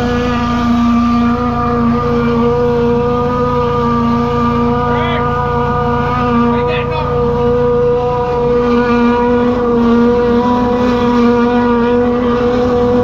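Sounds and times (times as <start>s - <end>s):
drain jetter engine running: 0.0s - 13.0s.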